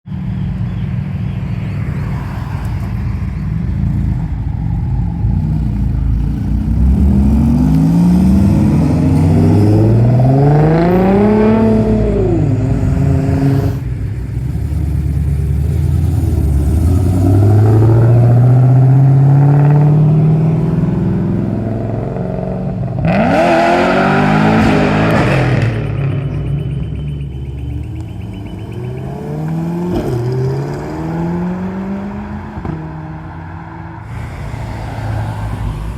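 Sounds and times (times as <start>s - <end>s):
car engines revving and accelerating: 0.2s - 35.9s.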